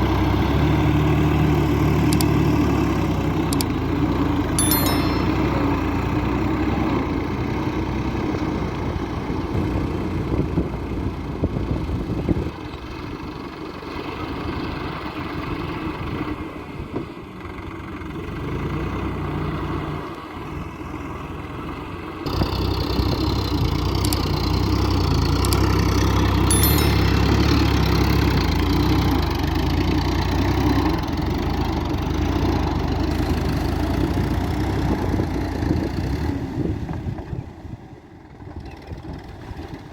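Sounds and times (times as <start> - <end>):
tractor diesel engine running: 20.7 - 35.9.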